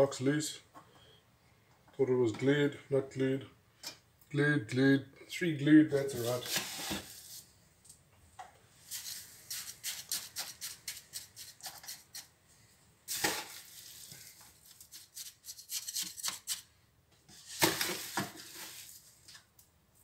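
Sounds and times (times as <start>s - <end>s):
tool scraping gritty mix: 6.0s - 7.4s, 8.9s - 12.3s, 13.1s - 16.7s.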